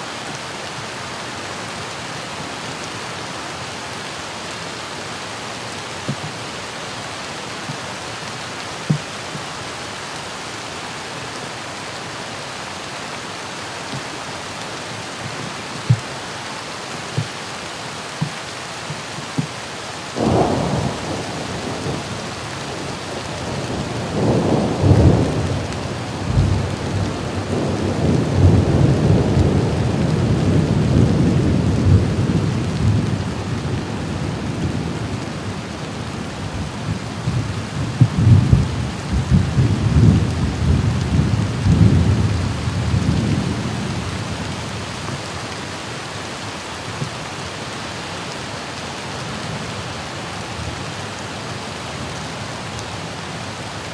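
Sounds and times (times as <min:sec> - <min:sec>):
steady rain: 0:00.0 - 0:53.9
thunder rolling: 0:20.2 - 0:22.2.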